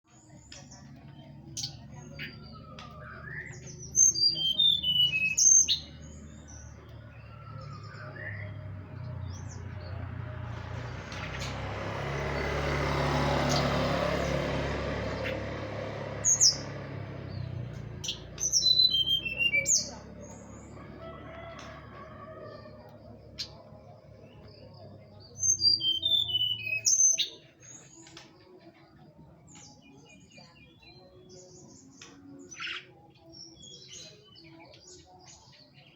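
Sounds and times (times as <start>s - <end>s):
bird song high notes: 1.6s - 6.1s, 25.5s - 27.4s.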